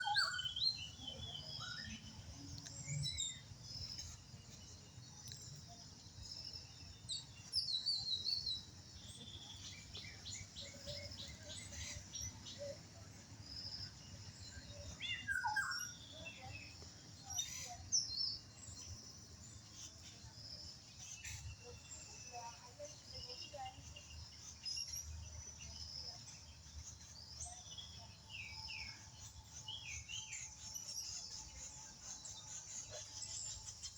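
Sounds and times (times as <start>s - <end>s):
birds chirping and calling: 0.0s - 18.9s.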